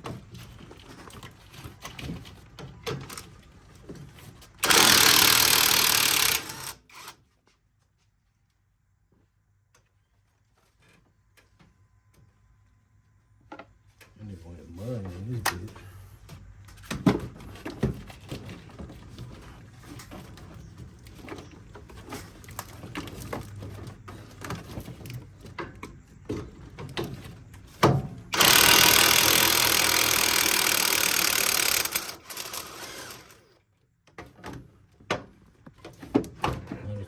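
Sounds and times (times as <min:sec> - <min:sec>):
power tool running: 0:04.6 - 0:07.2, 0:28.3 - 0:33.6.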